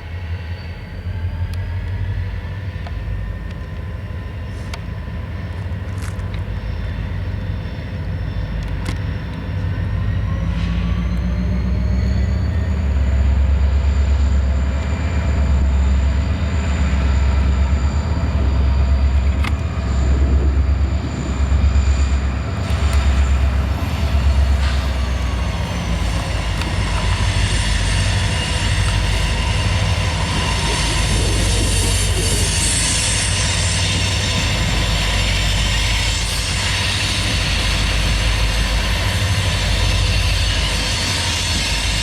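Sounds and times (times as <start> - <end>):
diesel train rumble: 0.0 - 42.0
wheels squealing: 13.8 - 38.1.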